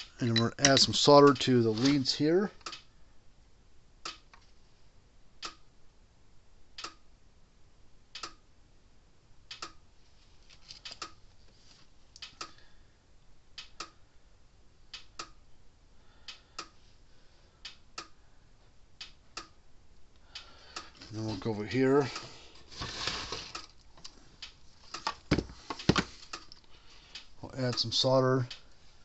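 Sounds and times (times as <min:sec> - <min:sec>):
faint handling noises: 0:00.0 - 0:02.6, 0:10.0 - 0:12.4, 0:20.8 - 0:29.0.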